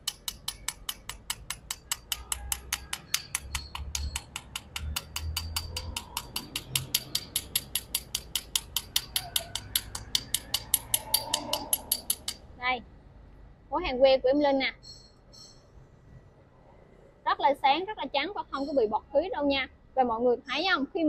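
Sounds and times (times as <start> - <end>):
hammer tapping on steel: 0.0 - 12.5.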